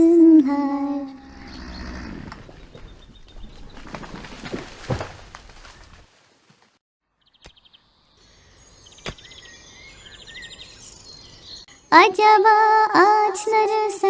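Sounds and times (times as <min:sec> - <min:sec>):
birds chirping in trills: 0:01.1 - 0:04.4, 0:07.2 - 0:12.0
rustling and knocking: 0:02.3 - 0:06.8.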